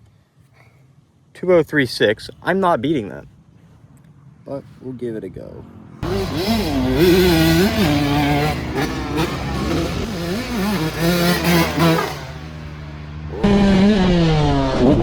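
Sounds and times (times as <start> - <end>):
motorbike engine revving: 6.0 - 15.0.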